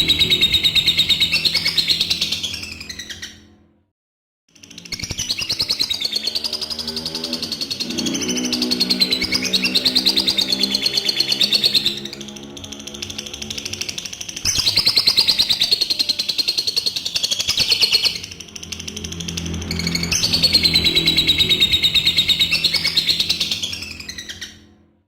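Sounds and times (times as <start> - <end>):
background music: 0.0 - 2.8, 6.2 - 25.0
lovebird shrill chatter: 0.0 - 3.3.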